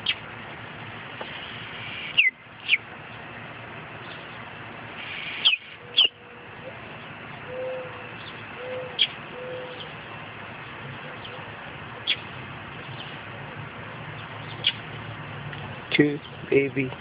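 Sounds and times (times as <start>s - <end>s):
baby birds chirping: 1.3s - 2.9s, 5.0s - 6.2s, 14.2s - 14.8s.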